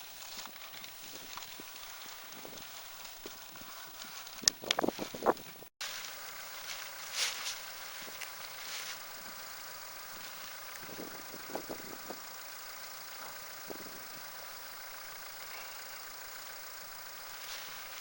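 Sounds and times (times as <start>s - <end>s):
steady background hiss: 5.8s - 18.0s.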